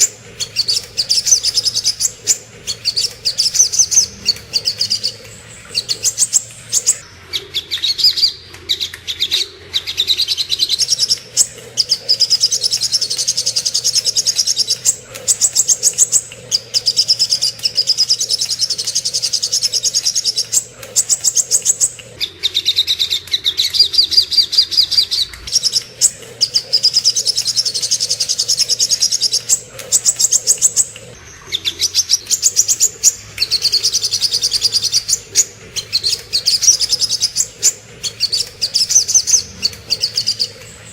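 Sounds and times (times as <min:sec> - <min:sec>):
bird rapid high chattering: 0:00.0 - 0:40.9.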